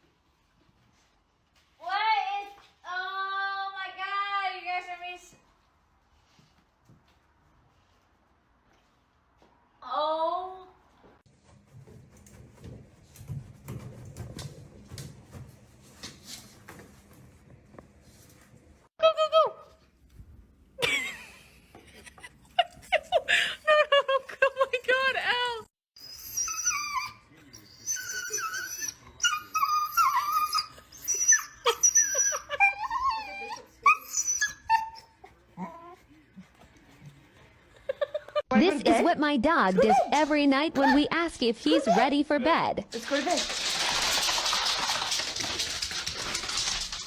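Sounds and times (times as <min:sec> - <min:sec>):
dog whining: 0:26.0 - 0:36.0
dogs scuffling: 0:43.0 - 0:47.0.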